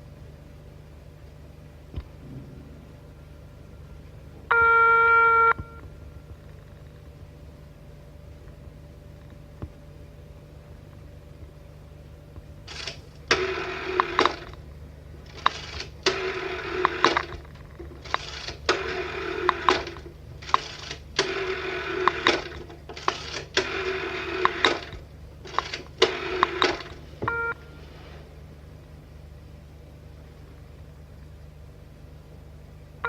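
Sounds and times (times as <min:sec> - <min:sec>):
telephone bell ringing: 0:04.5 - 0:05.8, 0:27.3 - 0:27.8.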